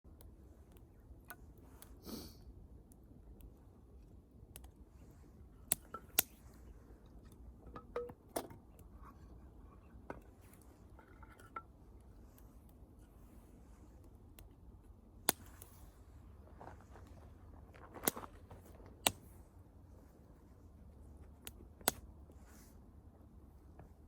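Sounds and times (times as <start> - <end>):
wood bonfire crackling: 11.8 - 19.4
fire popping: 15.2 - 16.0.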